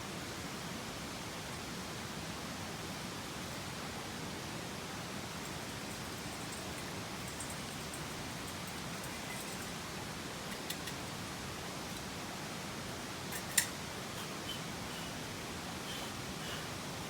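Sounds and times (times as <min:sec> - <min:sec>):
stream flowing: 0:04.6 - 0:17.0
faint small clicks: 0:10.5 - 0:11.0.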